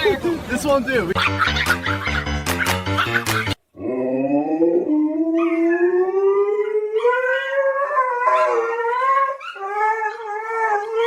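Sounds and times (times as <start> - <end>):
dog howling: 3.8 - 11.0.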